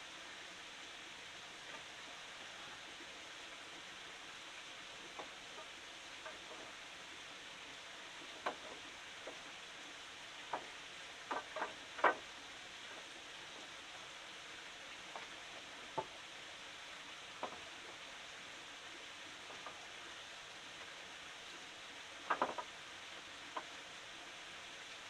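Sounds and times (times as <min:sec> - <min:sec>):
steady hiss: 0:00.0 - 0:25.0
light clicks and knocks: 0:08.3 - 0:09.5, 0:10.4 - 0:12.3, 0:22.2 - 0:22.7.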